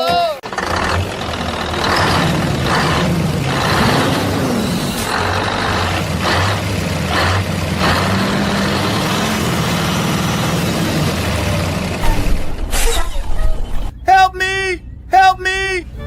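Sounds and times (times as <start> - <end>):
truck engine idling: 0.4 - 12.7.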